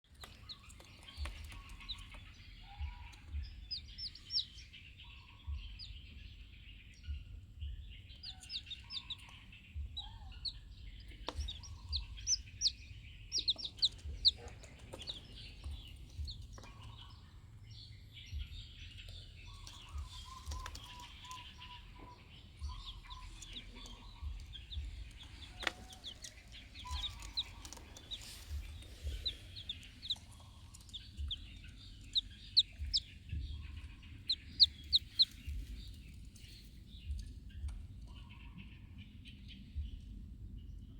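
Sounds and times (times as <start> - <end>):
chickens clucking: 11.0 - 17.5, 19.5 - 36.6.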